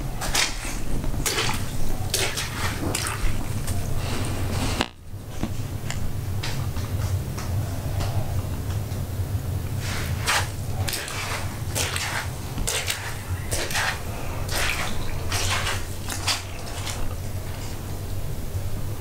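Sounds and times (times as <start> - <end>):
steady low hum: 0.0 - 19.0
water splashing on a floor: 0.2 - 3.5, 10.0 - 17.8.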